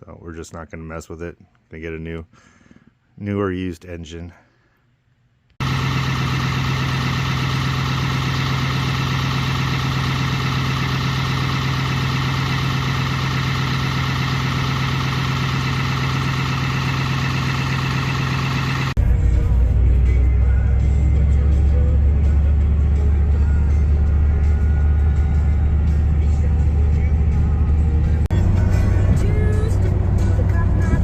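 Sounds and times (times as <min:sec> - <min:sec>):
vehicle engine droning: 0:05.6 - 0:31.0.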